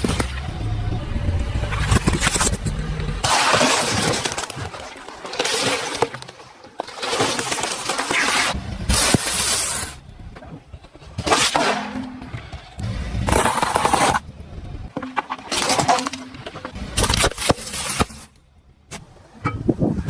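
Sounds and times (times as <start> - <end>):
low rumble: 0.0 - 3.3, 8.6 - 11.1, 12.2 - 15.0
brittle things crunching under tyres: 0.0 - 20.0.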